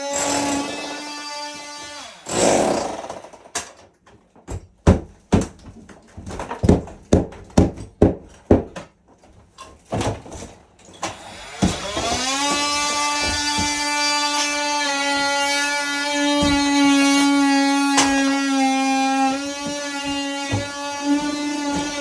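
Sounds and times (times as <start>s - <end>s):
hard knocks of demolition: 2.2s - 9.0s, 9.7s - 22.0s
power tool running: 11.0s - 22.0s.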